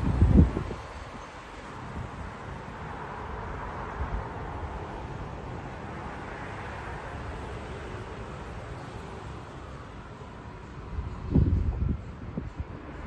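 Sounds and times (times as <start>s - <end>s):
wind buffeting microphone: 0.0s - 2.4s, 10.8s - 13.0s
steady rushing noise: 0.0s - 13.0s.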